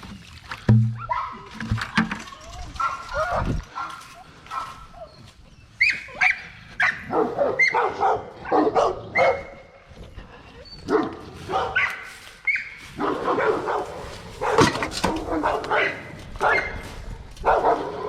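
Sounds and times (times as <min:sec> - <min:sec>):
dogs barking: 0:01.0 - 0:01.6, 0:02.8 - 0:09.9, 0:10.8 - 0:18.0.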